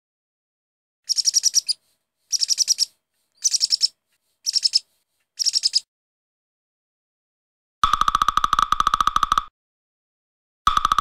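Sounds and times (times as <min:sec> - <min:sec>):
bird chirping rapidly: 0:01.1 - 0:05.8.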